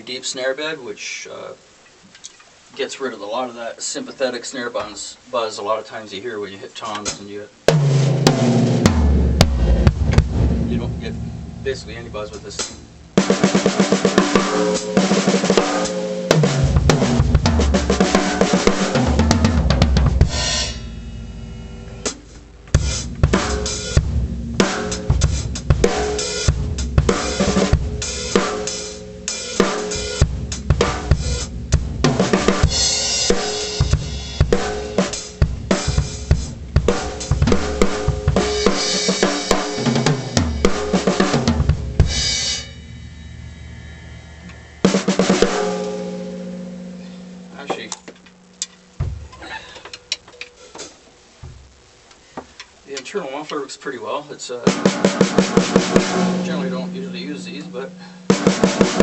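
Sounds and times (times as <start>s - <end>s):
bass drum: 7.7s - 49.6s, 51.4s - 52.0s, 54.8s - 59.0s
cymbals: 7.7s - 52.3s, 54.7s - 59.0s
snare drum runs and fills: 7.8s - 20.8s, 54.7s - 56.9s, 58.3s - 59.0s.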